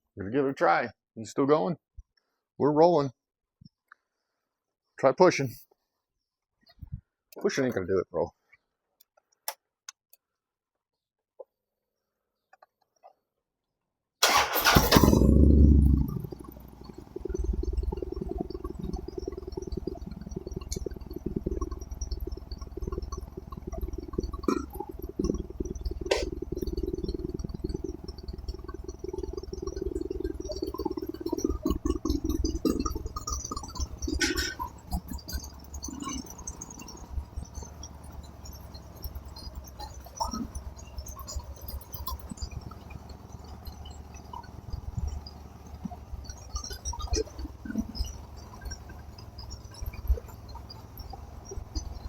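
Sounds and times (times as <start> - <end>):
motorcycle engine starting and rumbling: 14.2 - 52.0.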